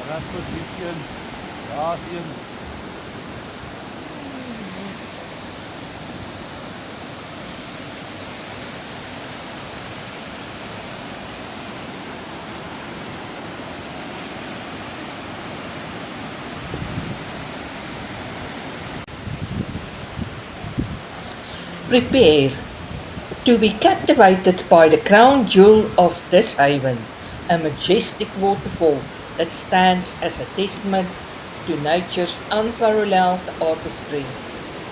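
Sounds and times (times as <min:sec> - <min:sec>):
waterfall rushing: 0:21.2 - 0:34.9.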